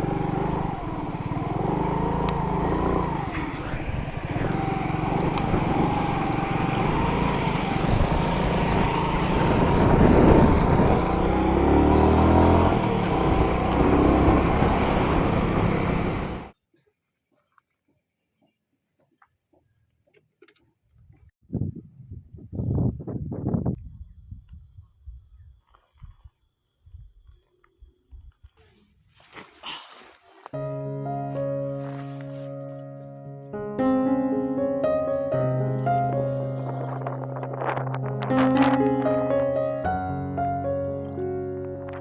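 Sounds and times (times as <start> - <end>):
motorcycle engine running: 0.0 - 16.5, 35.5 - 42.0
wind on microphone: 3.3 - 16.0, 21.1 - 26.2, 35.9 - 39.6.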